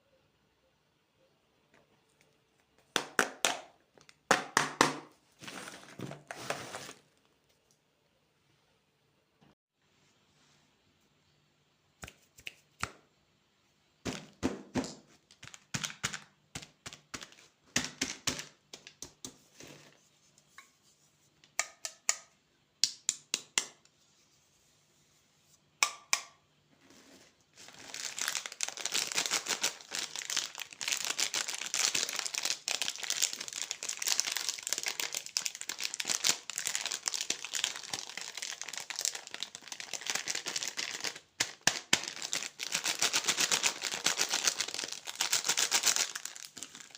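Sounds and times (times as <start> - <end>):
plastic packaging crinkling: 27.5 - 46.9.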